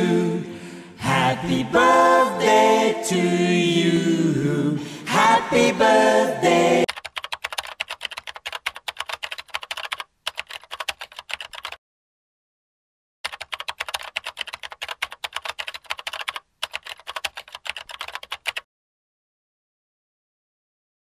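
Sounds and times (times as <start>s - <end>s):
rapid typing on keyboard: 6.9s - 11.8s, 13.2s - 18.7s.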